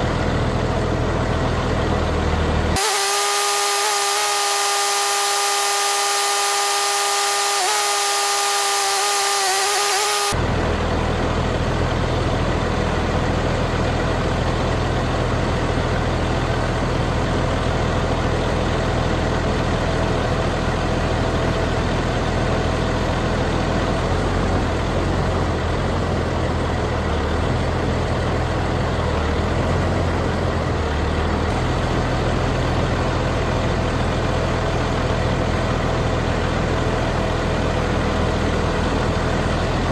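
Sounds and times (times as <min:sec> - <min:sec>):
large engine idling: 0:00.0 - 0:02.8, 0:10.4 - 0:39.9
high-pitched mechanical whine: 0:01.7 - 0:14.3.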